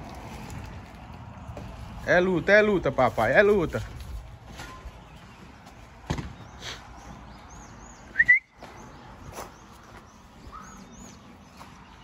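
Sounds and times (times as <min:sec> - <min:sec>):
faint high bird calls: 0:07.9 - 0:12.0.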